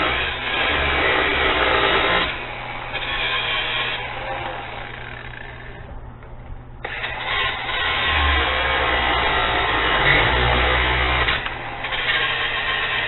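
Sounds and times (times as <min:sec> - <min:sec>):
angle grinder cutting steel cable: 0:00.0 - 0:05.8, 0:06.8 - 0:13.0.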